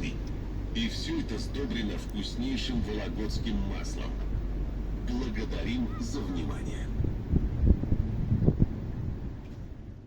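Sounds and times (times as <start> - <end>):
wind buffeting microphone: 6.5 - 10.0.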